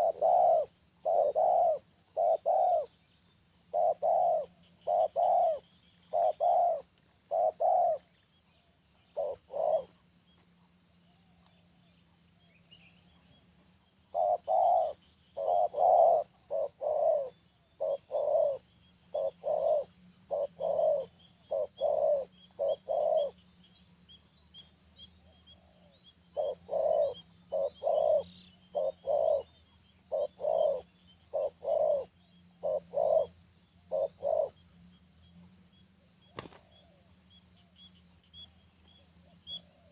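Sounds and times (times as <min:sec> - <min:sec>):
dove cooing: 0:00.0 - 0:03.0, 0:03.7 - 0:08.2, 0:09.0 - 0:10.1, 0:14.1 - 0:23.4, 0:25.3 - 0:34.6
small birds chirping: 0:00.0 - 0:39.9.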